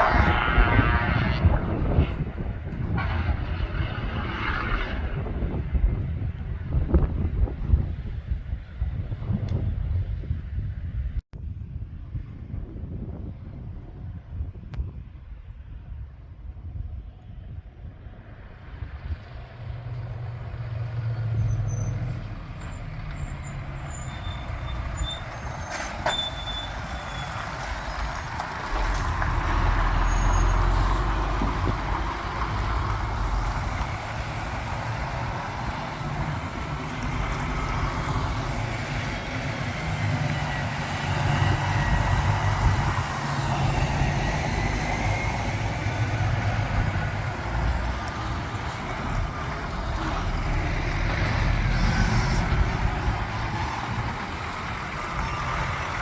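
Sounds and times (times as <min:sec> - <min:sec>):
heavy lorries driving past: 0:00.0 - 0:06.0, 0:18.1 - 0:56.0.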